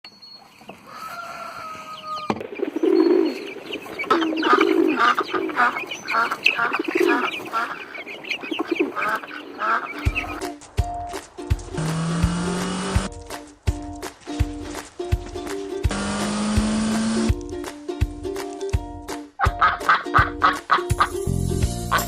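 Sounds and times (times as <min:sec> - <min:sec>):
poultry clucking: 0:00.4 - 0:10.5, 0:19.4 - 0:21.2.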